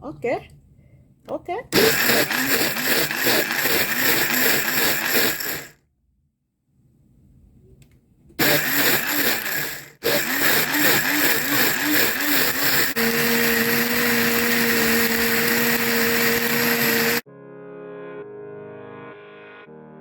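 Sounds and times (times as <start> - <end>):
blender motor whining: 1.8 - 5.8, 8.4 - 17.2
ice chopping in blender: 1.8 - 5.8, 8.4 - 17.2.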